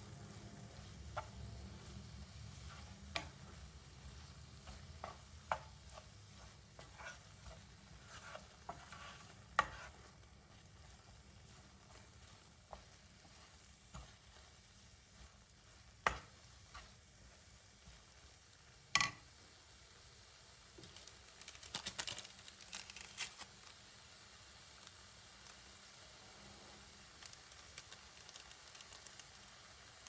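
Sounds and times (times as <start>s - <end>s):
light crackling ticks: 27.2s - 29.6s.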